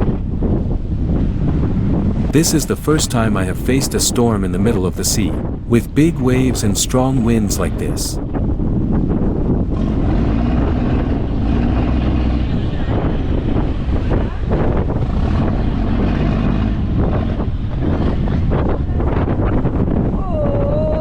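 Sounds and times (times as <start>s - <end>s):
wind buffeting microphone: 0.0s - 2.4s, 8.2s - 21.0s.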